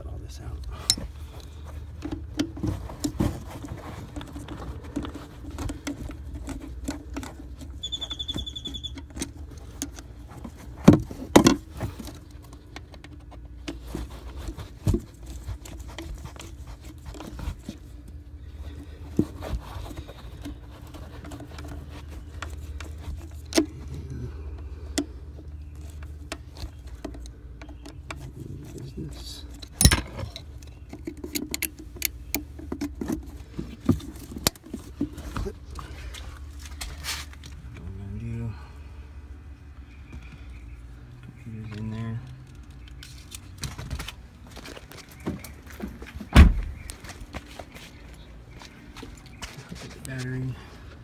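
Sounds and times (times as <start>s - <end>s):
tools clicking and knocking: 0.9s - 1.1s, 29.6s - 33.1s.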